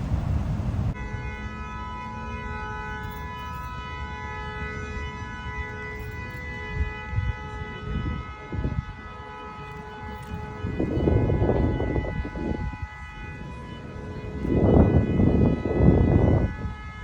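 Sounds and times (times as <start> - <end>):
low rumbling noise: 0.0 - 1.9
steady alarm-like tone: 0.0 - 17.0.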